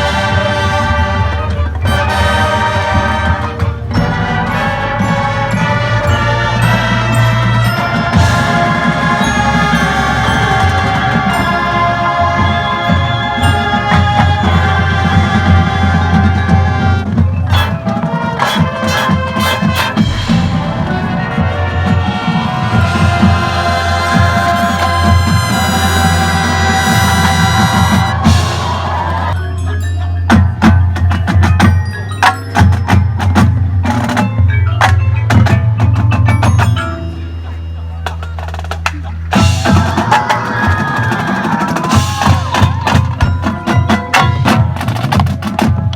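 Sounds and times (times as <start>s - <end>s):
pulsing low drums: 0.0s - 32.0s, 35.3s - 45.9s
marching band playing: 0.0s - 45.9s
sharp percussion strikes: 17.3s - 45.9s
low bass: 19.2s - 31.4s
sharp cymbal crashes: 20.0s - 22.7s.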